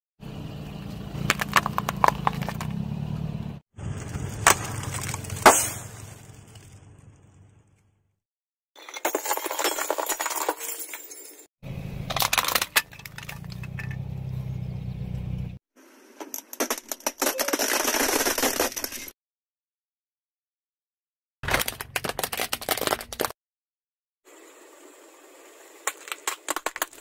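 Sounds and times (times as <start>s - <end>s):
hard objects crushed crackling: 1.2s - 2.8s, 3.8s - 7.3s, 16.2s - 19.1s, 21.4s - 23.4s, 25.9s - 27.0s.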